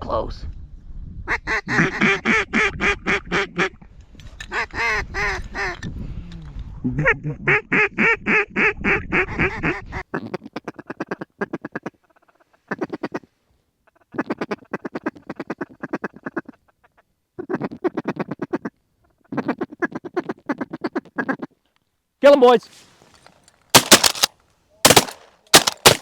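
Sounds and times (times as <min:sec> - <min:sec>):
duck call quacks: 0:01.3 - 0:03.8
rapid clucking duck call: 0:01.5 - 0:03.8, 0:09.4 - 0:21.6.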